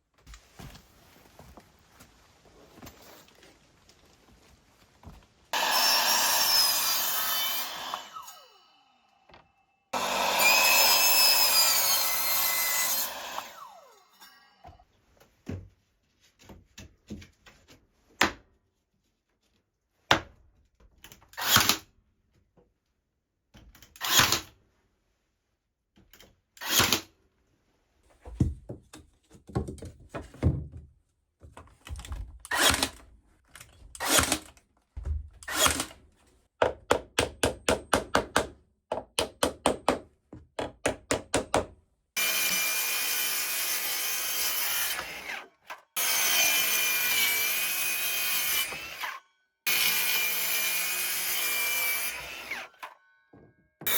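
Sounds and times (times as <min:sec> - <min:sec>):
wood being hand sawn: 0:05.6 - 0:09.0, 0:10.0 - 0:14.2.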